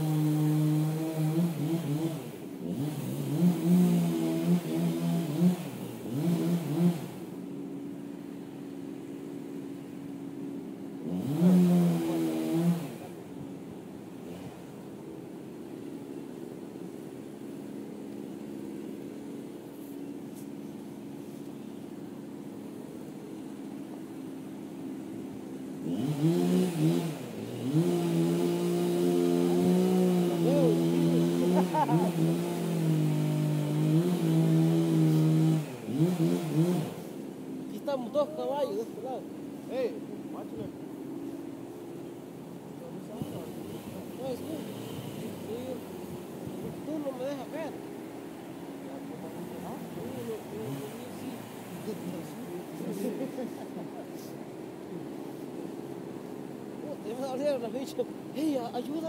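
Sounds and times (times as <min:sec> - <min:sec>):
engine revving: 0:00.0 - 0:07.4, 0:11.0 - 0:13.3, 0:14.1 - 0:15.2, 0:25.8 - 0:40.8, 0:42.8 - 0:47.8, 0:48.4 - 0:55.5.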